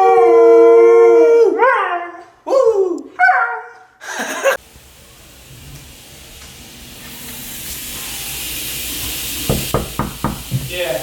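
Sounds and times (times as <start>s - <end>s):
water running and spraying: 4.2s - 11.0s.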